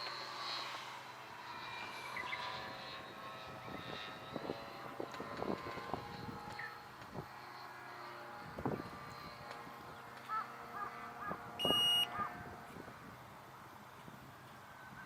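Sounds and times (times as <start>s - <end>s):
model airplane motor humming: 0.0s - 14.9s
bird calls: 10.2s - 12.4s
loud electronic beep: 11.6s - 12.1s.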